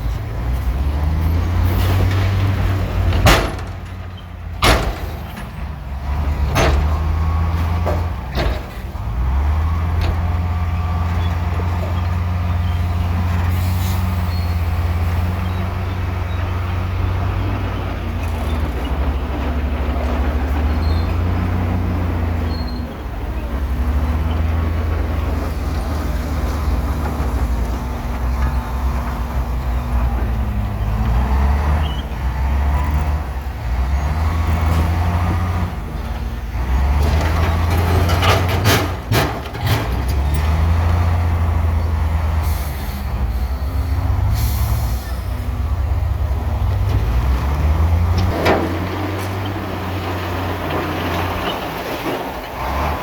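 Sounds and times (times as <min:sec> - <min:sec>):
heavy diesel machinery engine drone: 0:00.0 - 0:53.0
air brake hiss: 0:42.4 - 0:43.6, 0:44.3 - 0:45.2.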